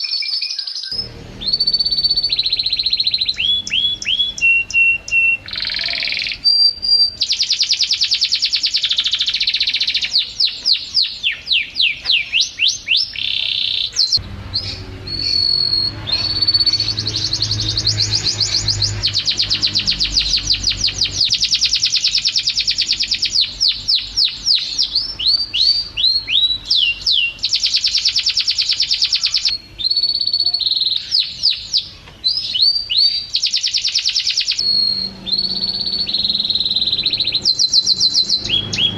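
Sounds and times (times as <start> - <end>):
canary singing trills and whistles: 0.0 - 38.9
faint low rumble: 1.0 - 4.5, 34.6 - 38.9.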